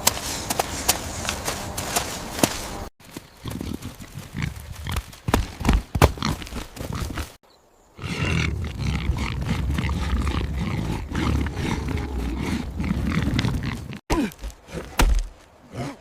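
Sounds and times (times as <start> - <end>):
large animal growling: 8.0 - 14.0.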